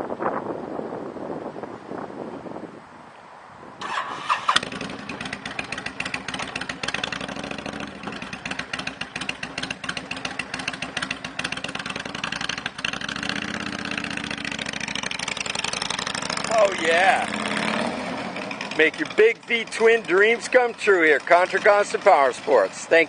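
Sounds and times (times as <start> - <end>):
motorcycle starter cranking: 3.8 - 13.0
motorcycle engine idling: 3.8 - 23.0.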